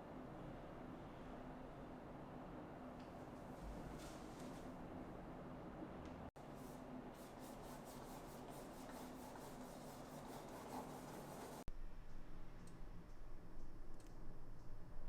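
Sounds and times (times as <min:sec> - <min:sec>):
paintbrush rubbing on canvas: 0:06.5 - 0:11.7.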